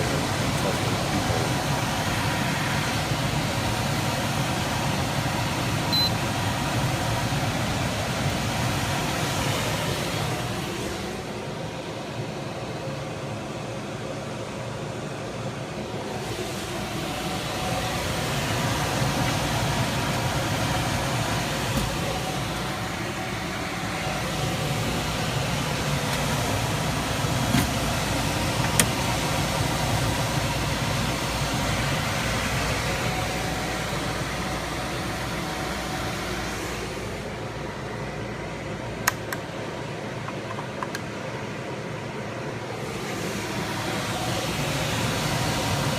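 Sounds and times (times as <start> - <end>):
hvac air rushing: 0.0 - 5.9, 15.7 - 40.2, 41.2 - 45.9.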